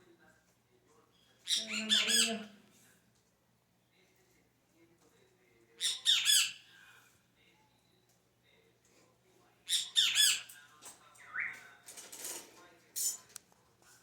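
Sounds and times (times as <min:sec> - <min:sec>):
bird squawking: 0:01.5 - 0:02.6, 0:05.8 - 0:06.6, 0:09.7 - 0:10.5, 0:11.3 - 0:11.6.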